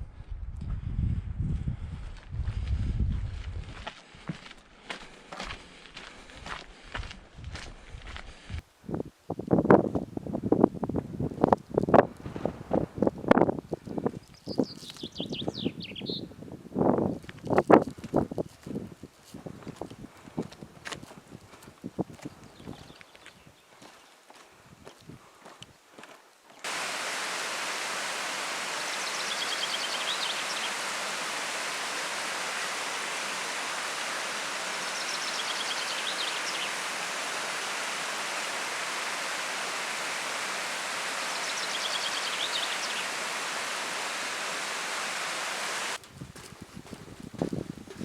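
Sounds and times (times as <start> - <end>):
flowing water rushing: 26.6 - 46.0
faint bird calls: 26.7 - 46.0.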